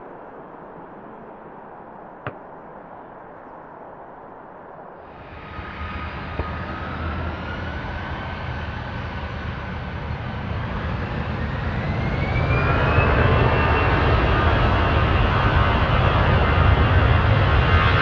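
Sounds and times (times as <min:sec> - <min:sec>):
jet engines roaring: 0:05.0 - 0:18.0
rising engine whine: 0:05.1 - 0:17.8.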